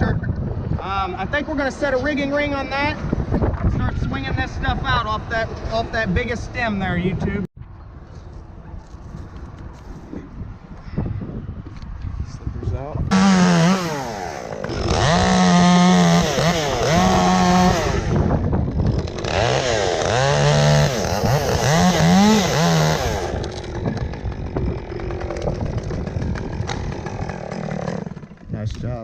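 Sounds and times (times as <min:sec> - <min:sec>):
chainsaw cutting wood: 0:13.1 - 0:28.5.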